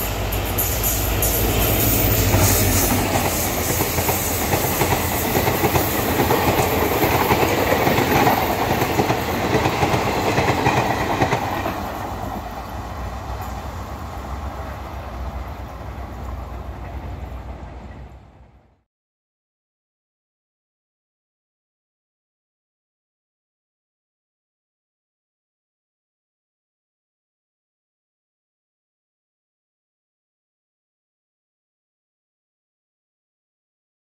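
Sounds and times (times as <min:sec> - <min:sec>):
train wheels clattering over rail joints: 0:00.9 - 0:12.5.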